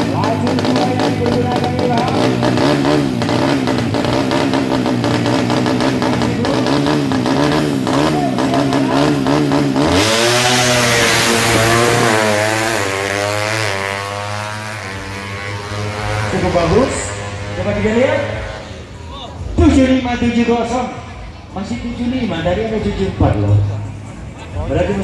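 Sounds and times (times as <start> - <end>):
motorcycle accelerating through gears: 0.0 - 19.0
motorcycle engine revving: 0.0 - 19.0.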